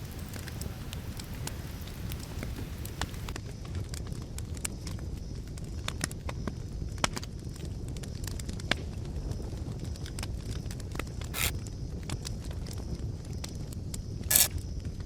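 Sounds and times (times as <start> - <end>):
fire hissing flare: 0.0 - 3.4
campfire crackling and popping: 0.0 - 15.0
fire low rumble: 0.0 - 15.0.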